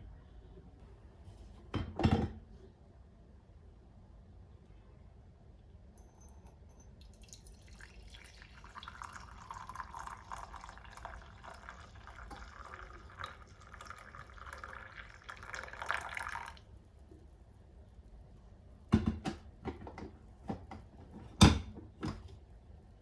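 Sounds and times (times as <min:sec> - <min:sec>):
water running from a tap: 0:07.0 - 0:16.6.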